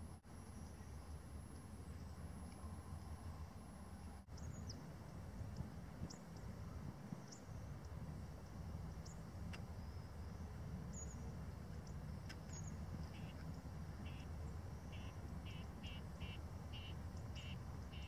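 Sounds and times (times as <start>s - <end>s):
wind rumble on microphone: 0.0s - 18.0s
small bird chirping: 4.3s - 4.9s, 10.9s - 18.0s.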